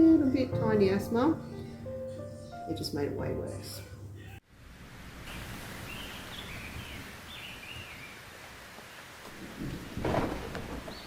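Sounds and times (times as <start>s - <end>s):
steady rain: 4.5s - 11.0s
birds chirping: 5.3s - 8.3s
thunder rumbling: 9.3s - 11.0s.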